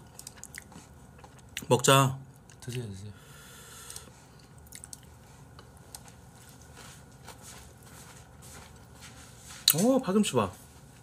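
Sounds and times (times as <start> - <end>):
food crunches: 0.0 - 1.7, 3.9 - 5.2
person chewing food: 0.0 - 1.7, 3.7 - 9.8.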